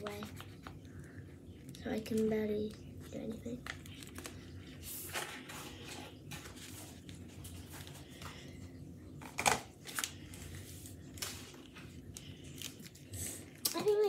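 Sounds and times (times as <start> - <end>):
paper handling: 3.1 - 8.4, 9.2 - 14.0.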